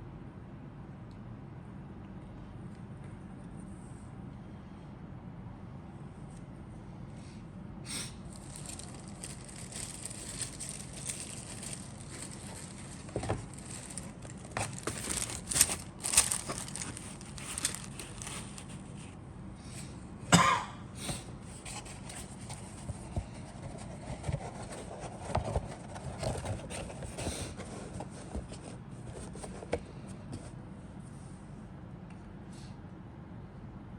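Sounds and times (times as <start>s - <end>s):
rustling and scraping of parts: 8.2s - 19.2s, 21.1s - 31.4s.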